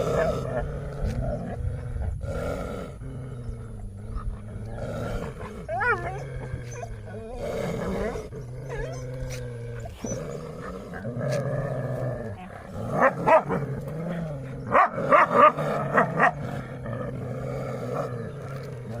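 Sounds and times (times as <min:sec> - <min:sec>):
dogs growling: 0:00.0 - 0:19.0
dogs barking and snapping: 0:18.0 - 0:19.0.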